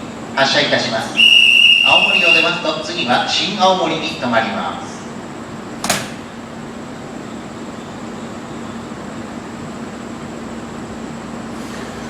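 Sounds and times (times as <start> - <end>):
train electric hum: 0.0 - 12.0
faint high whine: 1.2 - 2.9.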